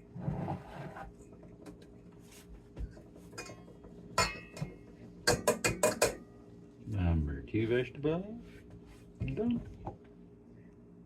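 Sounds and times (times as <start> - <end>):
dishes clinking and knocking: 2.8 - 6.3.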